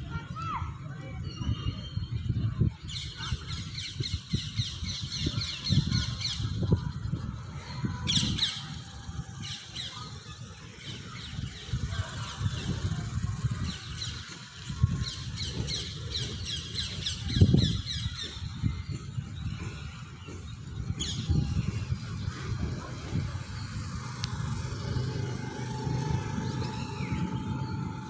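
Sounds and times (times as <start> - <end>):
birds chirping: 0.0 - 28.0
wind rumble on microphone: 0.0 - 28.0.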